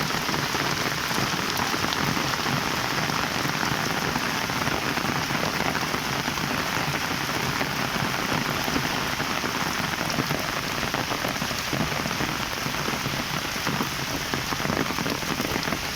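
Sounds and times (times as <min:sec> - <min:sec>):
heavy rain falling: 0:00.0 - 0:15.9.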